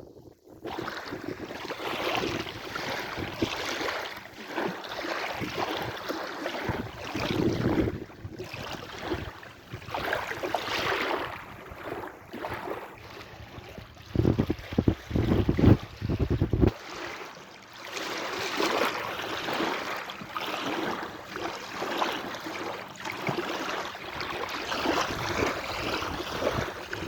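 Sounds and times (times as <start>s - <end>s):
wind buffeting microphone: 0.0s - 3.6s, 6.6s - 12.0s, 13.0s - 16.8s, 24.2s - 27.0s
sea waves breaking: 0.6s - 27.0s.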